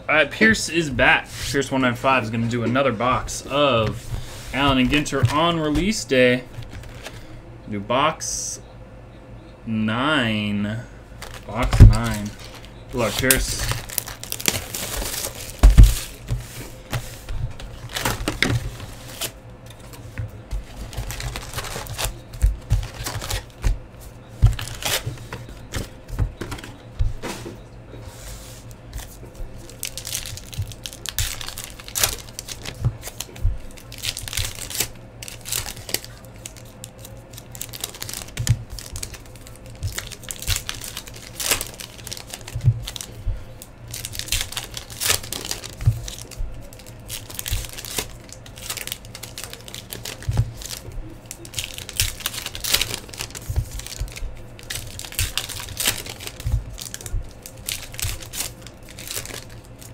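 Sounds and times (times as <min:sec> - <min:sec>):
plastic wrapping crinkling and tearing: 0:03.8 - 0:07.3, 0:11.2 - 0:26.6, 0:29.0 - 0:59.9
cardboard packs set down: 0:11.2 - 0:20.0.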